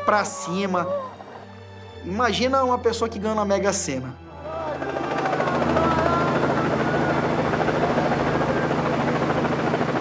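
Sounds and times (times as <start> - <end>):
helicopter engine hum: 4.5 - 10.0
helicopter rotor chopping: 4.6 - 10.0.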